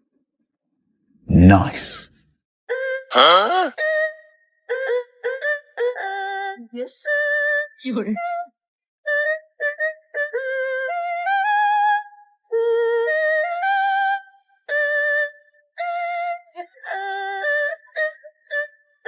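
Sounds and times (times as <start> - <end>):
high-pitched singing: 2.7 - 8.5.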